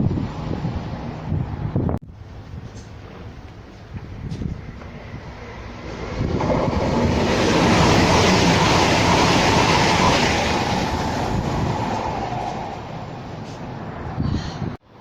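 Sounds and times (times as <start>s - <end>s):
train passing: 0.0s - 14.7s.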